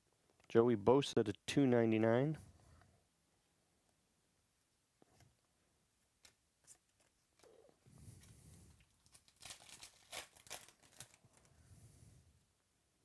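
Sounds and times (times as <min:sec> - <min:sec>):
foil wrapper tearing and crinkling: 0:08.9 - 0:11.5.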